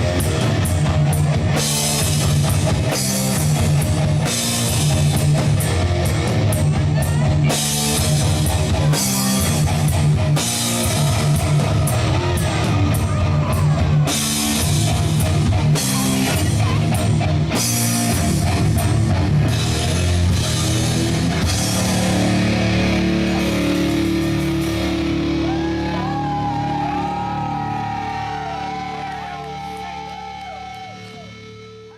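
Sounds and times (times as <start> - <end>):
lead guitar bending notes: 0.0 - 28.6
rock band playing: 0.0 - 31.9.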